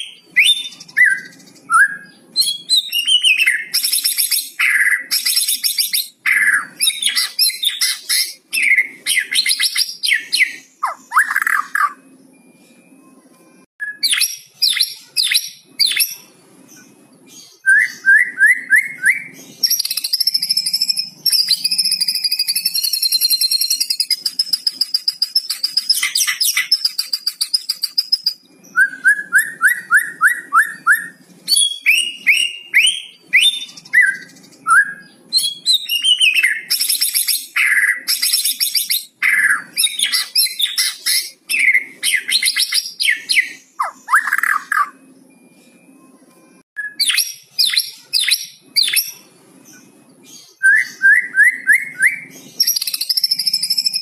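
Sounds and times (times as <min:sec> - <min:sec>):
songbird singing varied song: 0:13.8 - 0:45.5, 0:46.8 - 0:54.0.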